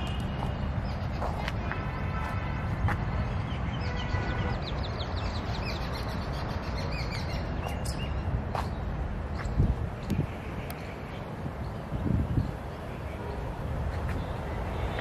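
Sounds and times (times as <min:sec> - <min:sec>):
small birds chirping: 0:03.4 - 0:13.2.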